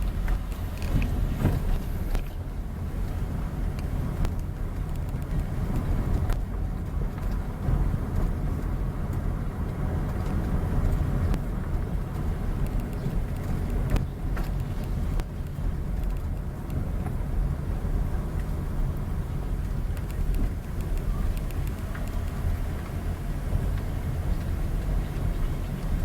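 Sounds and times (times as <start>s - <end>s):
vehicle engine and road noise: 0.0s - 26.0s
faint ticks: 18.4s - 23.0s.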